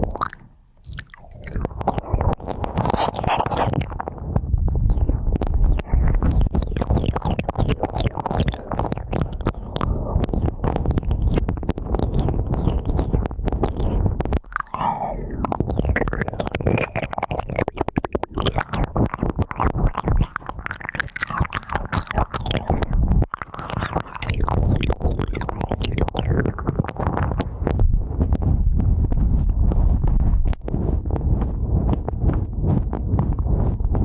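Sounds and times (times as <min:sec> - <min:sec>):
ear pick scratching in ear: 0:00.0 - 0:34.0
low rumble: 0:26.5 - 0:34.0.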